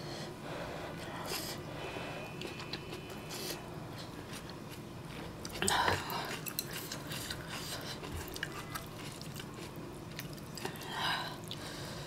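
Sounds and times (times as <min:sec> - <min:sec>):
chewing noodles: 0:02.4 - 0:11.7.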